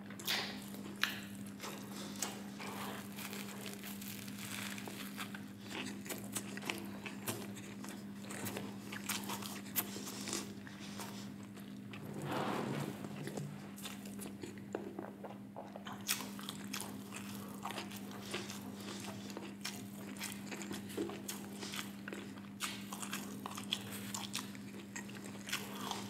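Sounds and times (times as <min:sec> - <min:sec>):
crunchy chewing close up: 0:00.2 - 0:12.0, 0:13.2 - 0:26.0.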